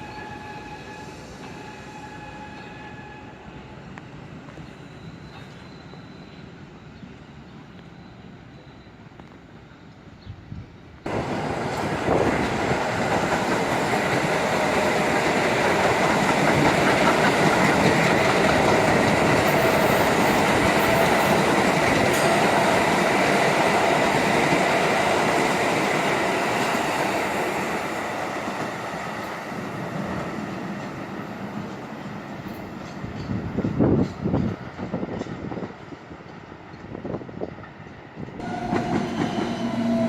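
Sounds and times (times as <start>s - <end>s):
subway train running on track: 0.0s - 40.0s
wheel and rail clatter: 11.3s - 22.5s.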